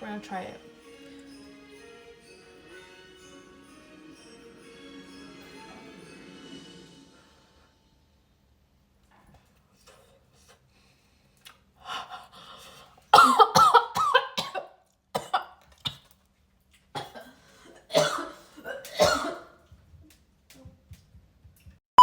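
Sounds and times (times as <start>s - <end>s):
woman coughing and gagging: 13.1s - 16.0s, 17.0s - 19.6s.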